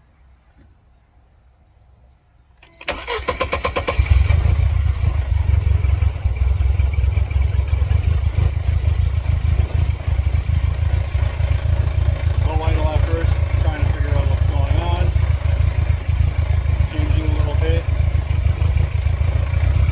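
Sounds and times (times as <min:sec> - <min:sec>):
ignition click: 0:02.6 - 0:04.1
engine starter cranking: 0:02.6 - 0:05.7
rough engine idle: 0:03.9 - 0:19.9.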